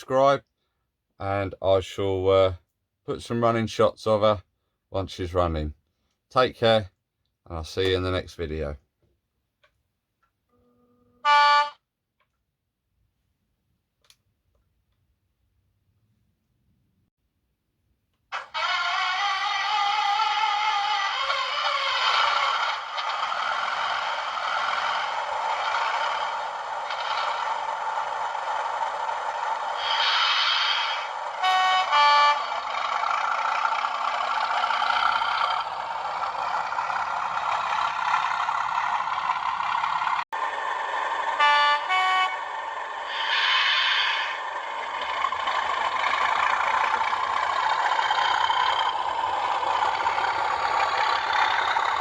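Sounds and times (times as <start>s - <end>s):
two-tone train horn: 10.5s - 11.9s, 31.4s - 32.8s, 41.4s - 42.6s
diesel engine running through speaker: 18.4s - 52.0s.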